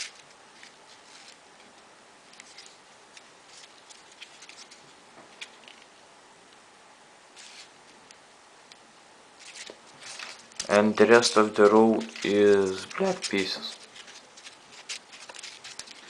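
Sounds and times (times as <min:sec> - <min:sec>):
paper rustling and clicking: 0:02.3 - 0:05.9, 0:09.4 - 0:16.0.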